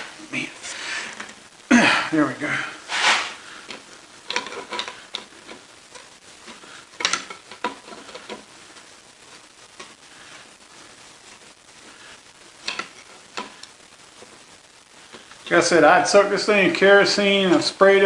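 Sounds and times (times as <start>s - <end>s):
metal parts clicking and scraping: 2.9s - 8.5s, 12.6s - 13.6s.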